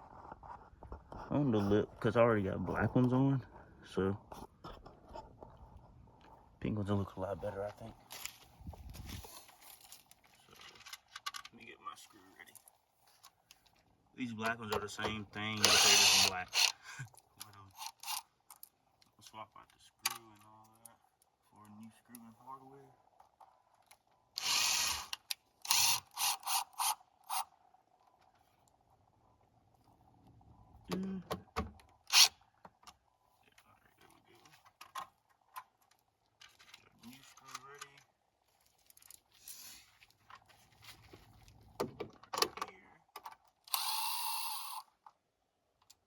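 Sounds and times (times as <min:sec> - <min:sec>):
power driver whirring: 0:15.6 - 0:16.8, 0:24.4 - 0:27.5, 0:32.1 - 0:32.4, 0:43.7 - 0:44.9
screws clicking and knocking: 0:15.6 - 0:16.8, 0:17.7 - 0:18.6, 0:24.4 - 0:27.5, 0:32.1 - 0:32.3, 0:43.7 - 0:44.9.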